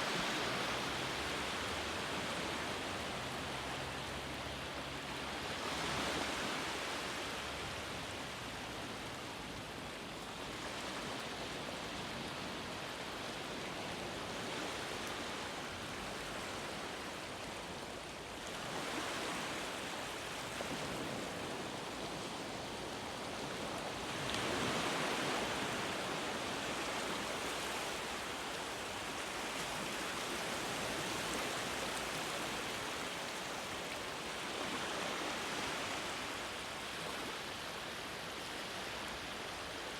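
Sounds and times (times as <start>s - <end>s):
ocean waves breaking: 18.4s - 39.9s.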